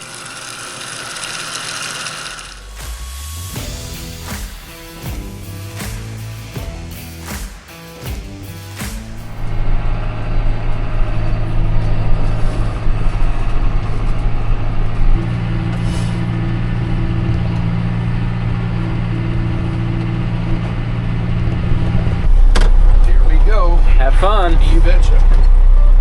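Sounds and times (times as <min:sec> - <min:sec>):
heavy vehicle engine running: 0:00.0 - 0:26.0.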